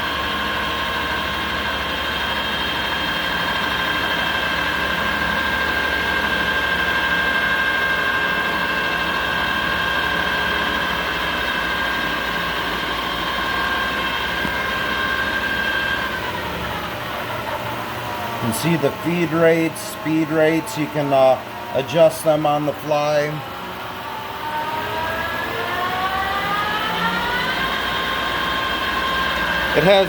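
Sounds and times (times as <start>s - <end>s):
lathe spindle whining: 0.0s - 30.0s
low machine hum: 0.0s - 30.0s.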